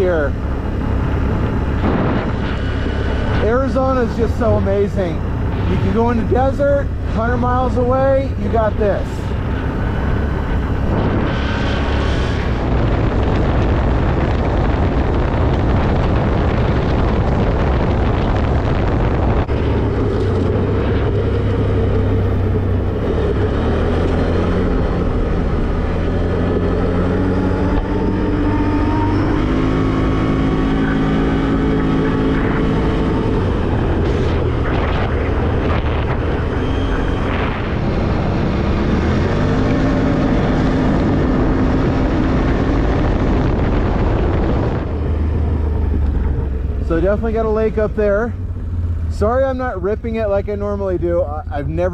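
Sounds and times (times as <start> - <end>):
vehicle engine hum: 0.0 - 51.9.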